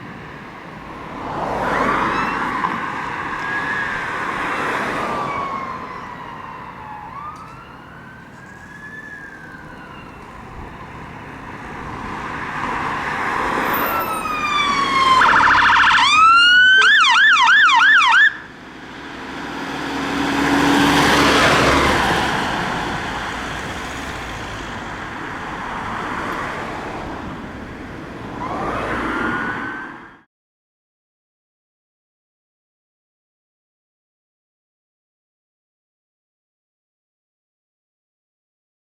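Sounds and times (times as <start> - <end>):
fire engine passing: 0.0 - 30.3
fire engine siren wailing: 1.3 - 30.3
siren yelp: 1.4 - 11.6, 13.0 - 18.6, 28.3 - 30.3.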